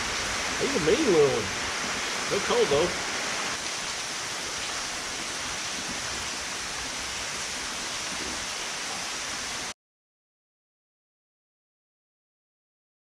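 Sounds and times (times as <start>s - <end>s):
steady hiss: 0.0s - 9.7s.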